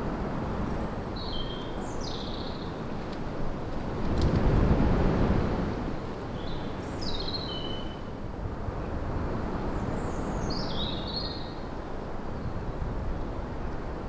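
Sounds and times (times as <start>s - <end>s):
small bird singing: 0.8s - 2.7s, 6.4s - 8.0s, 9.8s - 11.6s.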